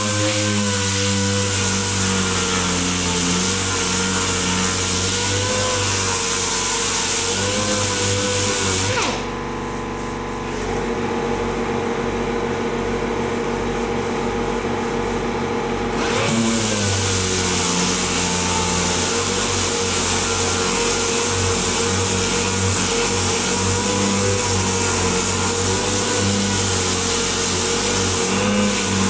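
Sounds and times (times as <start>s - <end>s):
motor running with hiss: 12.8s - 29.0s.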